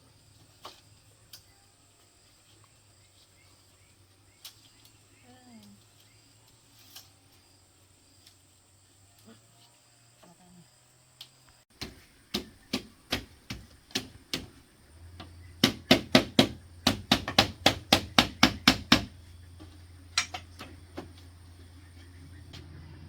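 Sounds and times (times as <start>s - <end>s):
hammer striking bamboo: 11.7s - 21.2s.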